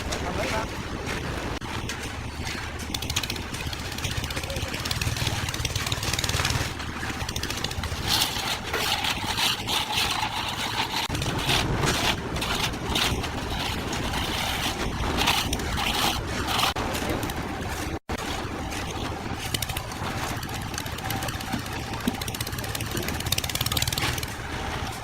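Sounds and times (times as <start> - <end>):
engine running: 0.0 - 25.0
irregular scraping strokes: 6.4 - 19.6.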